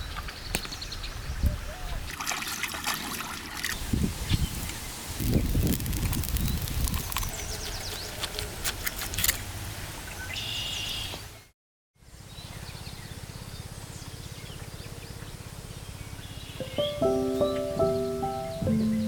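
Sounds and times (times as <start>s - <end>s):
birds chirping: 12.3s - 19.0s.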